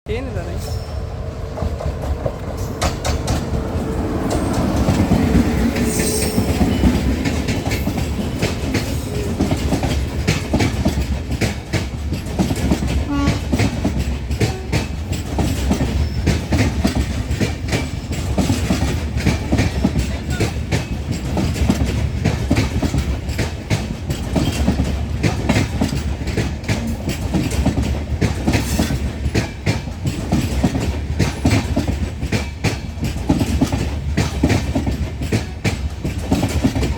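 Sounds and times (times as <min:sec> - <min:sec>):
low train rumble: 0:00.1 - 0:36.9
train wheels clattering over rail joints: 0:00.8 - 0:36.9.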